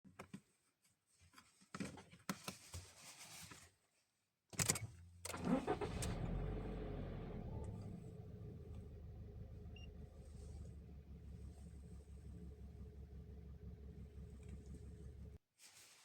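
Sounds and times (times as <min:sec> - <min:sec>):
car engine starting and idling: 0:05.3 - 0:15.4.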